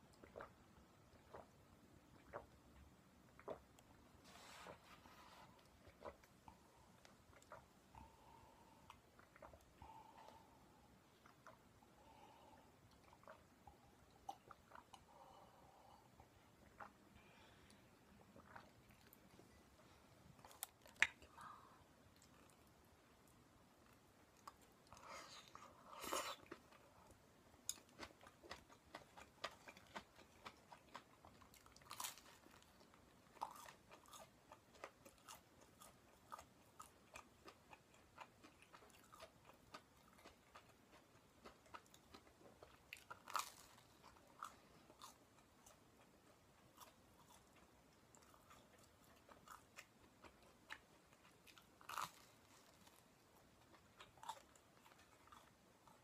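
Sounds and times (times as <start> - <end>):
chewing: 18.2 - 19.3, 23.8 - 56.0.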